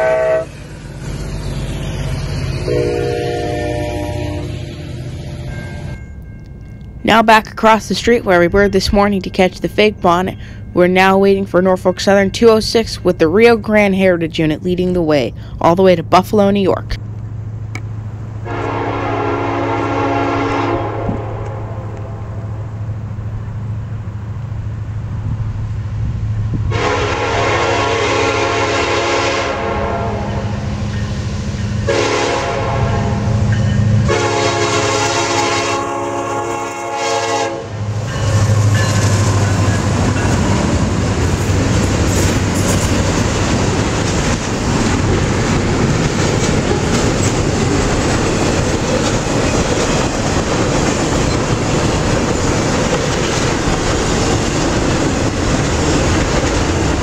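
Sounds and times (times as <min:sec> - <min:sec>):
train air horn blasts: 0:00.0 - 0:00.7, 0:02.6 - 0:05.5, 0:18.4 - 0:22.6, 0:26.7 - 0:30.6, 0:31.8 - 0:38.2
diesel locomotive rumble: 0:00.0 - 0:57.0
train wheel noise and clatter: 0:04.6 - 0:57.0.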